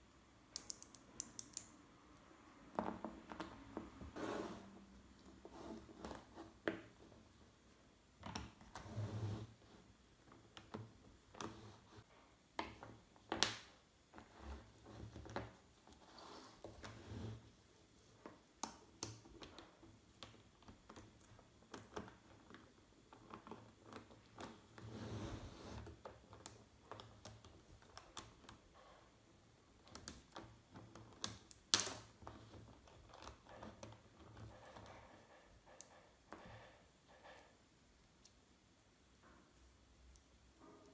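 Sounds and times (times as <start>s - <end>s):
magnetic balls clicking together: 0.5s - 1.8s
rustling scrape: 4.1s - 6.4s.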